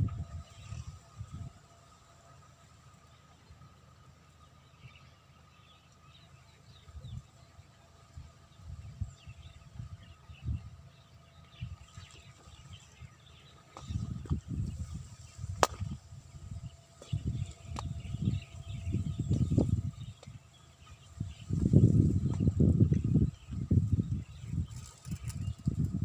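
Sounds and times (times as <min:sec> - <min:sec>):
faint steady whine: 0:00.0 - 0:26.0
low rumbling thumps: 0:13.8 - 0:20.4, 0:21.2 - 0:26.0.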